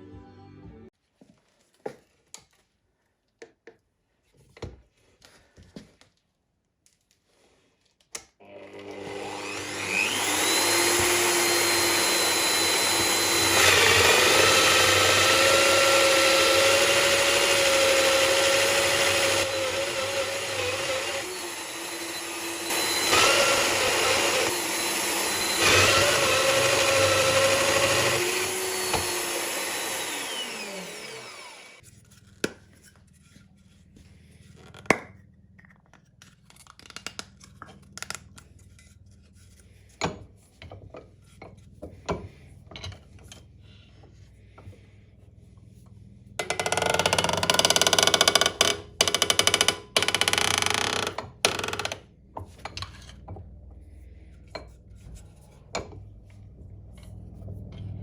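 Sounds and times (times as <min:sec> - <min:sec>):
power tool motor cutting wood: 0:08.4 - 0:31.8, 0:46.4 - 0:52.0.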